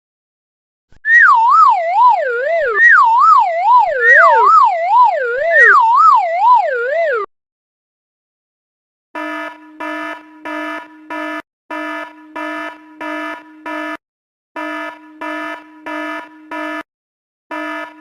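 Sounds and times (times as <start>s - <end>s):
police siren wailing: 1.1s - 7.3s.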